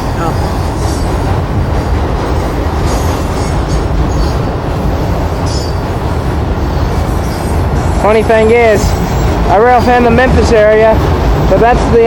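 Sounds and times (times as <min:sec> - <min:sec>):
freight train wheels rumbling: 0:00.0 - 0:12.0
steel wheels squealing on rail: 0:02.4 - 0:10.4.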